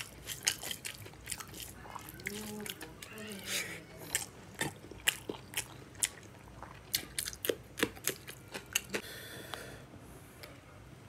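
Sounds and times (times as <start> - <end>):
close-up chewing with wet clicks: 0.0 - 3.4, 4.0 - 9.0.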